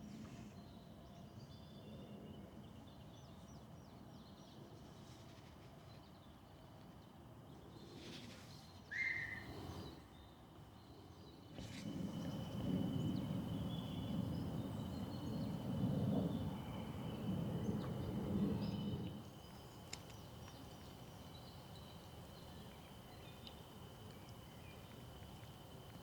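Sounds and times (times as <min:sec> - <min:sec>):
faint bird chirps: 0:08.8 - 0:25.1
low rumble: 0:11.8 - 0:19.7.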